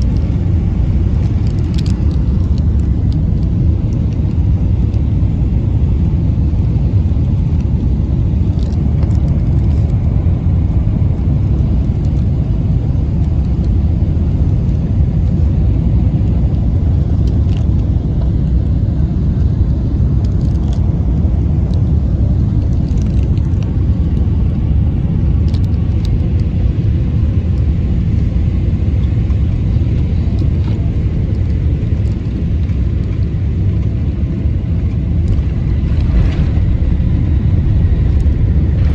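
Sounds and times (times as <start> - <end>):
airplane cabin rumble: 0.0 - 38.9
faint clicks and rattles: 1.1 - 4.3.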